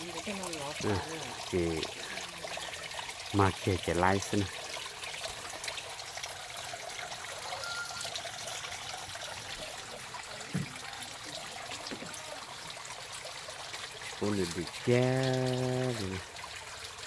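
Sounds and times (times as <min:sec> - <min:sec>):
water trickling: 0:00.0 - 0:17.0
faint whistle: 0:07.5 - 0:08.1.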